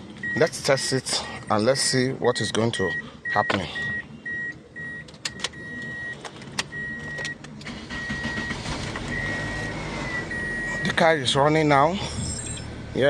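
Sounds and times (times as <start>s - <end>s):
car warning chime beeping: 0.2s - 0.6s, 1.8s - 11.0s
car engine running: 3.0s - 13.0s
ignition clicks: 4.4s - 9.7s.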